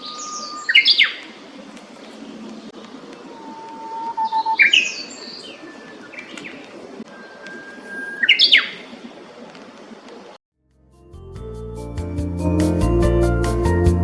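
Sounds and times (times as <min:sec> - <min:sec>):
songbird singing: 0:00.0 - 0:01.4, 0:02.0 - 0:09.0.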